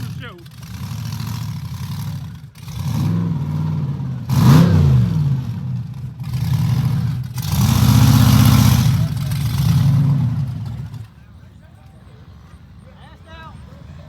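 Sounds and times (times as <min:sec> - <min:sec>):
truck engine revving hard: 0:00.0 - 0:11.2.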